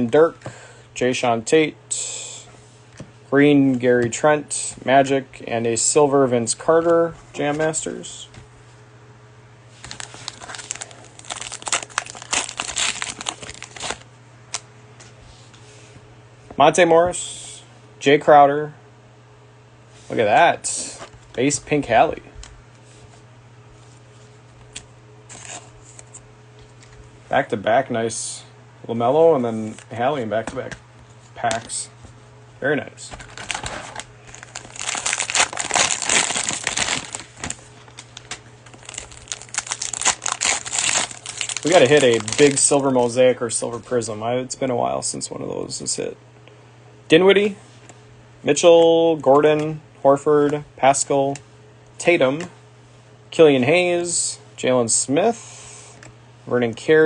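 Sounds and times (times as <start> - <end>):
cellophane wrapper crinkling: 9.8 - 14.6, 33.2 - 42.8.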